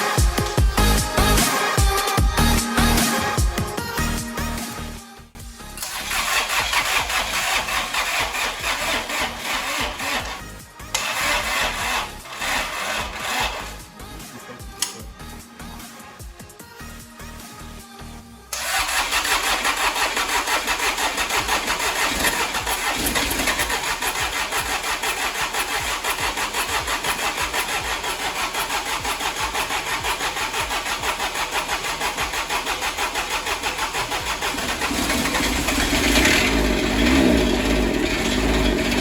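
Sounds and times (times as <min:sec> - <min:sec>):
engine cranking on starter: 0:05.6 - 0:14.1, 0:18.5 - 0:39.0.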